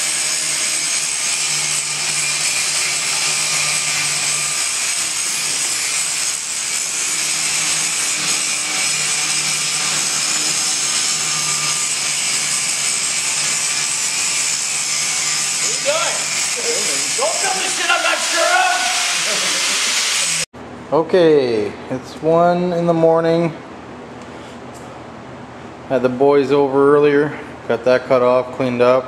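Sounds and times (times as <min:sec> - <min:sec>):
tool hissing roar: 0:00.0 - 0:20.5.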